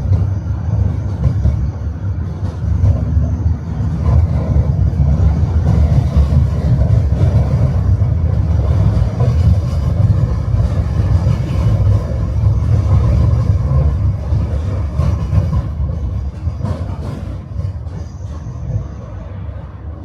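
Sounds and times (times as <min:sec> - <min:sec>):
tram wheels rumbling on rails: 0:00.0 - 0:20.0.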